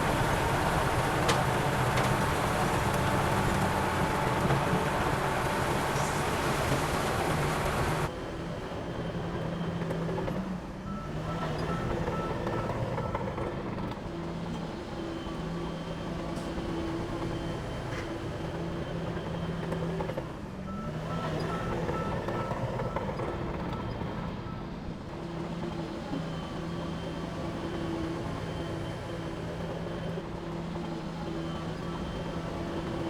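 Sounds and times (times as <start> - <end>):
diesel engine running: 0.0 - 33.0
reversing alarm beeping: 10.9 - 13.5, 20.7 - 24.7.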